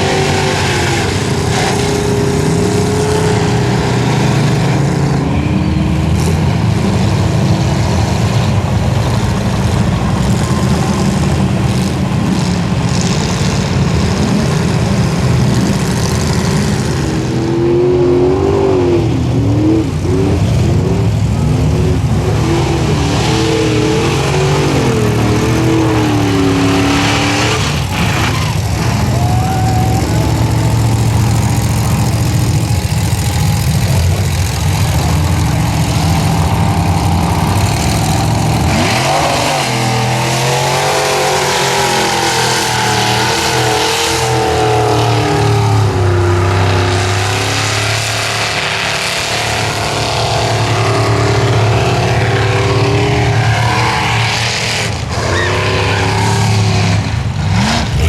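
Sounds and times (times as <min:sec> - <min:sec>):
truck engine revving hard: 0:00.0 - 0:58.0.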